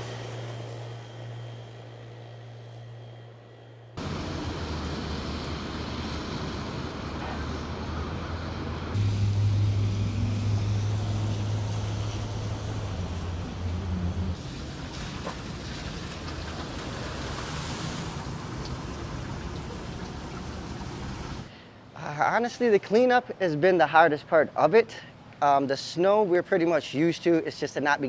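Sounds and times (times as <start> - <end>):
low engine hum: 0.0 - 21.5.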